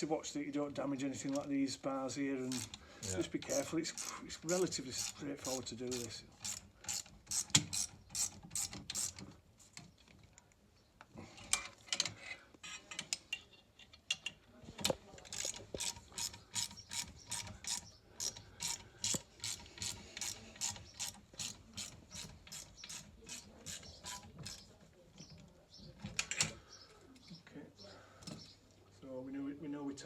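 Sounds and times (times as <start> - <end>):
ratchet spanner clicking: 2.5 - 2.8, 15.3 - 24.6.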